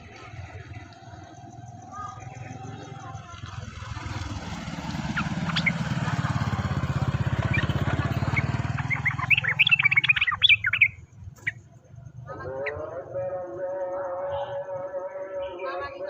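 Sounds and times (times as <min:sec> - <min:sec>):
small bird chirping: 0:00.0 - 0:12.8
vehicle engine rumbling: 0:00.0 - 0:14.9.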